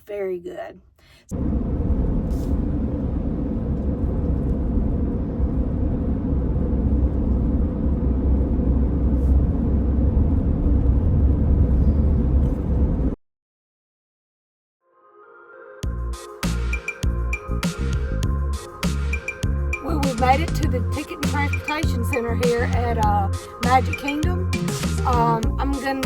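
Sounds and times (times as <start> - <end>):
minivan road and engine rumble: 1.3 - 13.2, 19.4 - 26.0.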